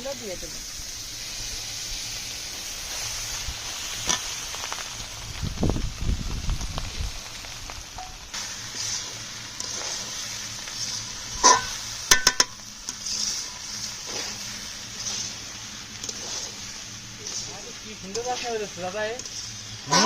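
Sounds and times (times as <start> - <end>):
rice sizzling in a pan: 0.0 - 20.0
utensil clacking against pan: 11.4 - 12.6.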